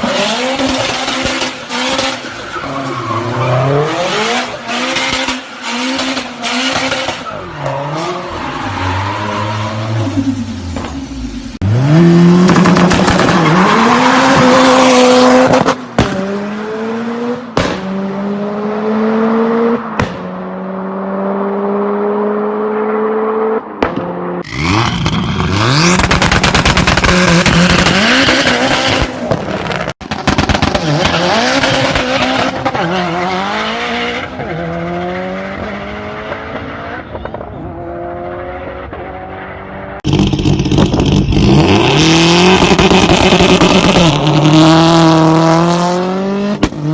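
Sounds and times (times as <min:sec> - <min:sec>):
car engine accelerating hard: 0:37.8 - 0:46.9.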